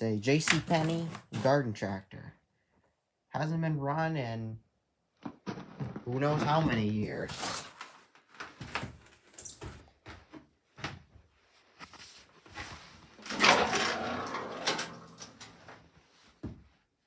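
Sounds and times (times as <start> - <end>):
scraping or rattling: 13.1 - 15.8
knocks and clunks: 13.2 - 16.6.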